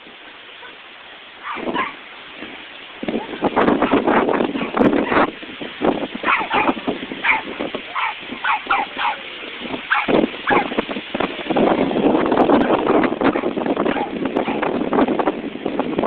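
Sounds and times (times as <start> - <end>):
steady rushing noise: 0.0 - 16.0
dogs barking: 0.6 - 0.8, 1.4 - 2.0, 3.1 - 5.3, 6.2 - 10.8, 12.6 - 14.8.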